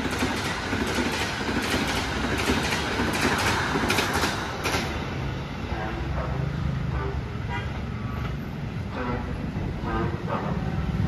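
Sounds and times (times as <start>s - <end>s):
passenger train rumbling: 0.0s - 11.0s.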